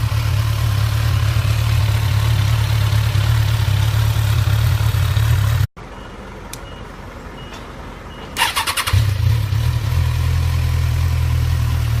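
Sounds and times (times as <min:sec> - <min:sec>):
motorcycle engine starting and idling: 0:00.0 - 0:05.7, 0:08.4 - 0:12.0.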